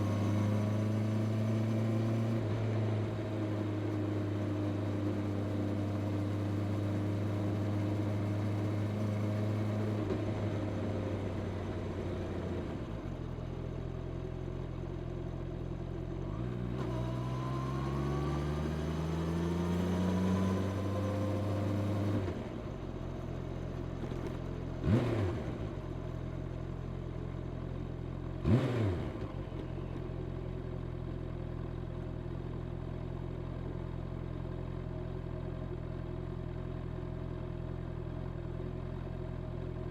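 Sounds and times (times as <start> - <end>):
motorcycle engine while riding: 0.0 - 36.8
motorcycle engine revs: 24.0 - 25.8, 28.4 - 29.6.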